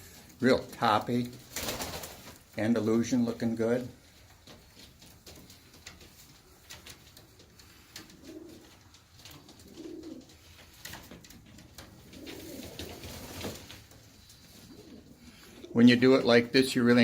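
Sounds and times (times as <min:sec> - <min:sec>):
pigeons cooing: 0:07.3 - 0:11.2, 0:11.8 - 0:13.6, 0:14.2 - 0:16.1.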